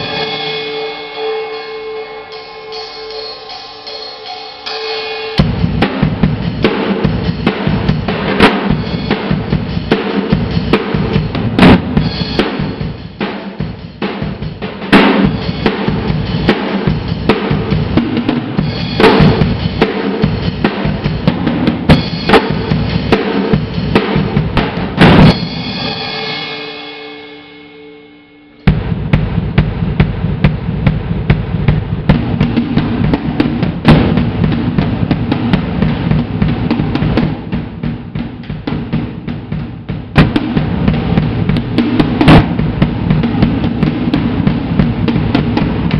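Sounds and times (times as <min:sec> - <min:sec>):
cymbal crashes: 0:00.0 - 0:07.8, 0:25.0 - 0:34.9
drum kit played fast: 0:00.0 - 0:45.9.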